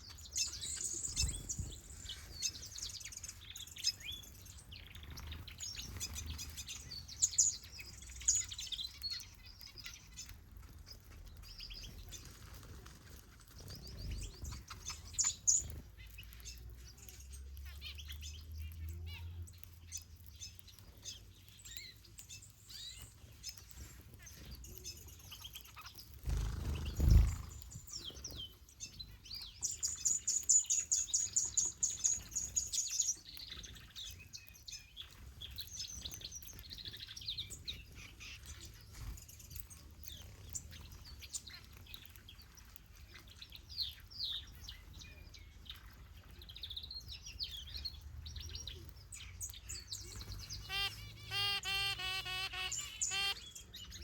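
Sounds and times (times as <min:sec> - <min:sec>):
birds chirping and calling: 0:00.0 - 0:54.0
bird high-pitched trill: 0:50.4 - 0:53.6.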